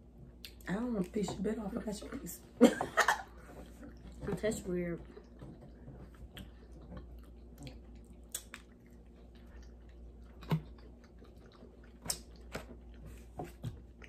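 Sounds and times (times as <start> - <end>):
quiet chewing of cereal bar: 3.3 - 4.2, 5.0 - 14.0.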